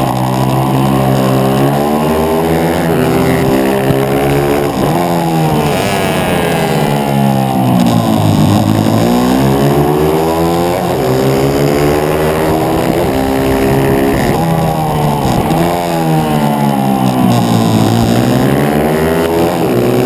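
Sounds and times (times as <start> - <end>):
motorbike engine revving: 0.0 - 20.0.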